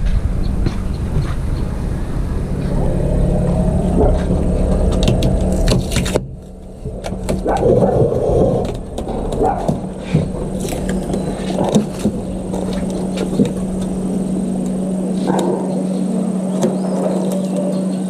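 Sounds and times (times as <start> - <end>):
clicks and rattles: 4.0 - 15.6.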